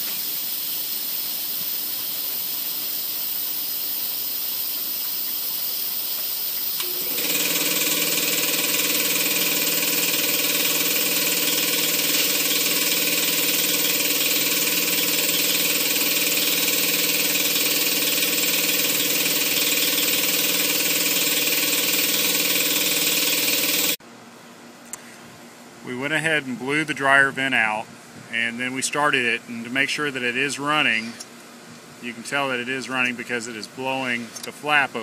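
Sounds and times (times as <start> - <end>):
faint hiss: 0.0 - 6.9
clothes dryer blower whirring: 6.8 - 24.0.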